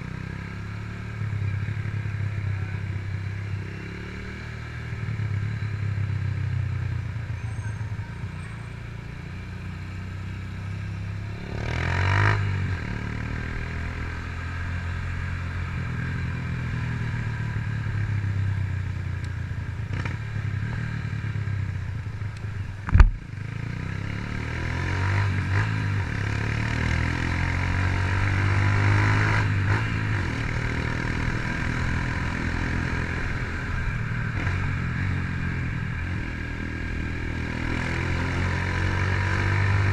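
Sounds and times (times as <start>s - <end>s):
motorcycle engine revving: 0.0s - 22.3s, 22.9s - 39.9s.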